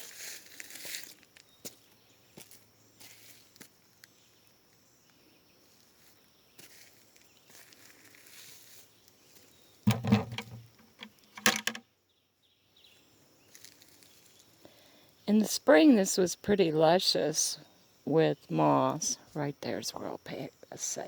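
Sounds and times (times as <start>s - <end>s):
footsteps in forest litter: 0.0s - 3.7s.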